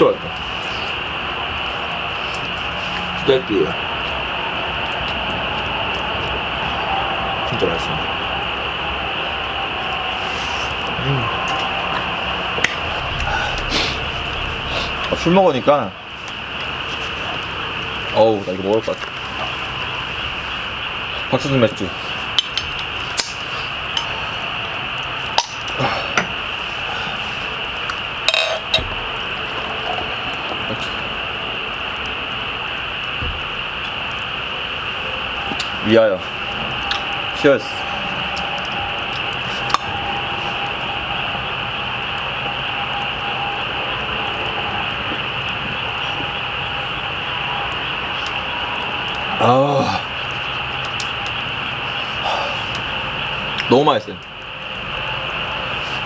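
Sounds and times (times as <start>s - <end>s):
background hiss: 0.0s - 56.0s
glass clinks and taps: 28.3s - 28.8s.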